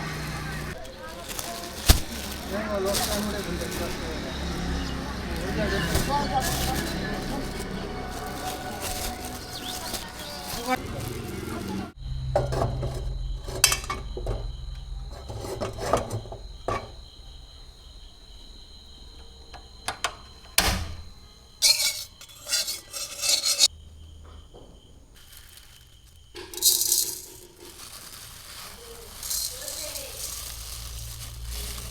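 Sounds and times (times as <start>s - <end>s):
rasping and rubbing strokes: 21.6s - 23.7s
utensils clicking on dishes: 21.6s - 23.7s.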